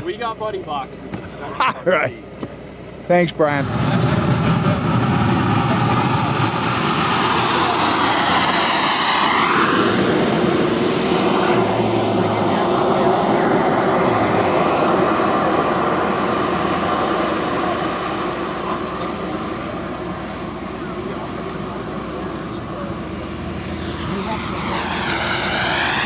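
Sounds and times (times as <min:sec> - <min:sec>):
jet turbine whine: 0:00.0 - 0:26.0.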